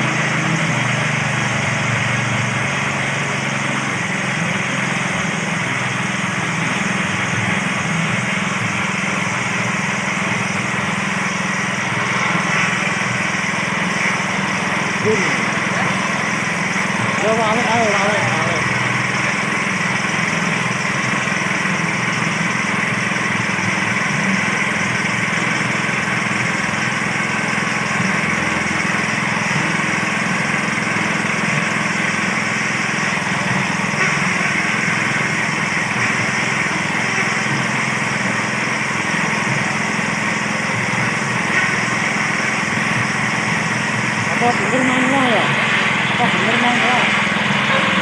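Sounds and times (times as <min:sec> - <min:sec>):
small engine running steadily: 0:00.0 - 0:48.0.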